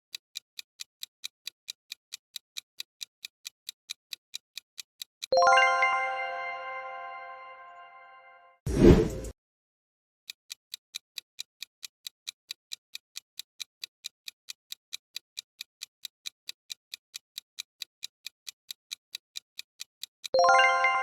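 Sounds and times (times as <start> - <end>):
countdown timer ticking: 5.3 - 7.4, 20.3 - 21.0.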